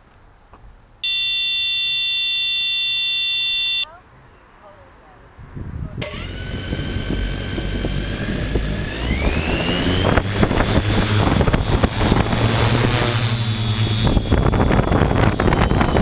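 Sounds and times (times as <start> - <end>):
short high beep: 1.0 - 3.9, 6.0 - 6.3
wind buffeting microphone: 5.3 - 16.0
drone motors whining: 6.0 - 16.0.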